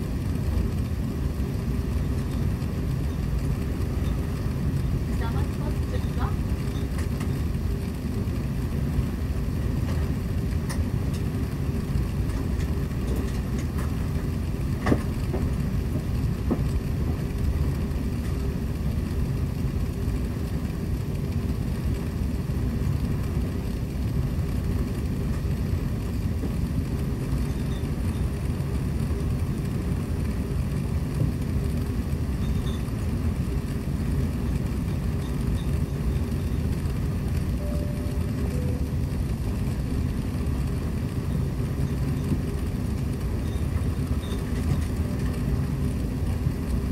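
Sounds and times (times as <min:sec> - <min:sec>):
constant cabin hum: 0:00.0 - 0:46.9
jet engine rumble and airflow hiss: 0:00.0 - 0:46.9.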